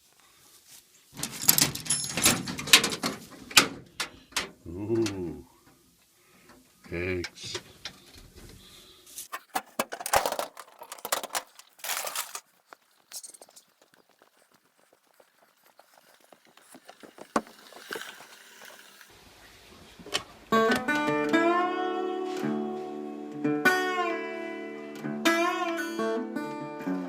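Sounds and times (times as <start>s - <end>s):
small clicks and knocks: 9.3s - 14.7s
rustling and scratching in straw: 11.4s - 19.1s.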